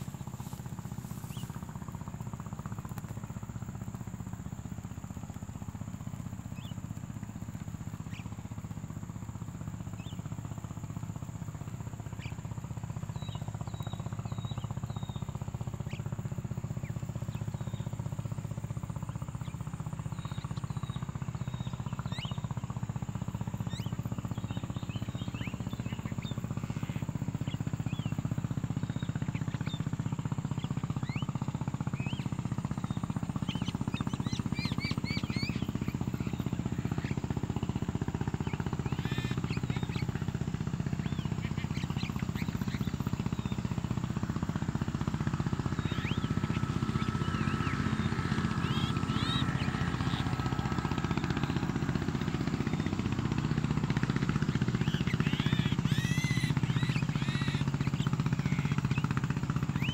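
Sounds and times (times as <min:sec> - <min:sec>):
birds chirping: 0:00.0 - 0:11.0, 0:12.0 - 0:59.9
steady low rumble: 0:00.0 - 0:12.2.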